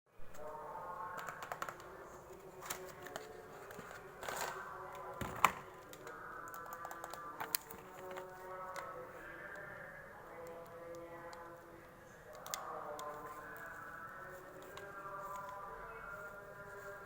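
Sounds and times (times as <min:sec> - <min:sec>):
packaging rustling: 0:01.2 - 0:06.0.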